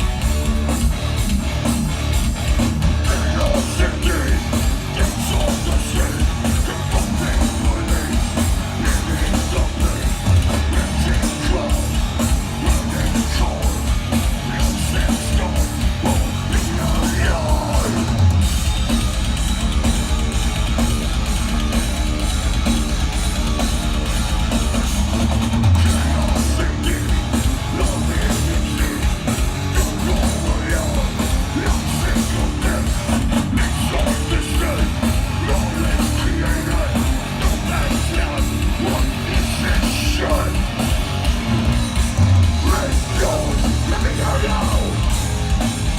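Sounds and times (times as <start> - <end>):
fast dense drumming: 0.0 - 45.9
heavy metal band playing live: 0.0 - 45.9
person singing: 3.0 - 18.2, 25.9 - 40.7, 42.6 - 45.1.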